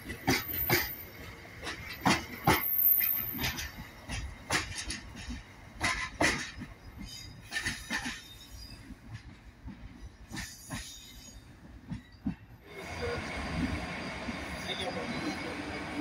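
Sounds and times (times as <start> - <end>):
train wheels clanking over rail joints: 0.0 - 12.6.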